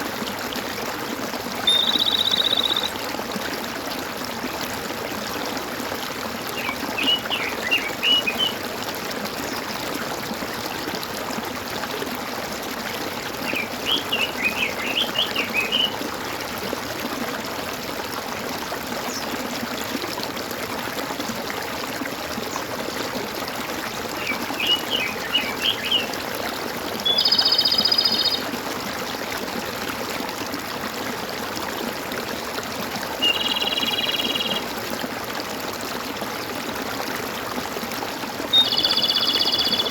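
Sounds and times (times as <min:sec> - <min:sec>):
water gurgling and trickling: 0:00.0 - 0:39.9
bird chirping: 0:01.7 - 0:02.9, 0:38.6 - 0:39.9.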